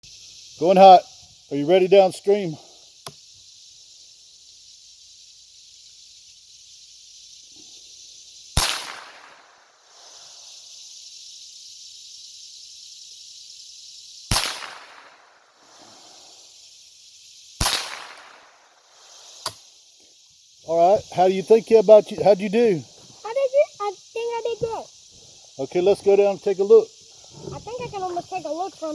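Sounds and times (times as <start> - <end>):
insects buzzing: 0.0 - 28.9
rifle shots: 14.3 - 15.1, 17.6 - 18.4.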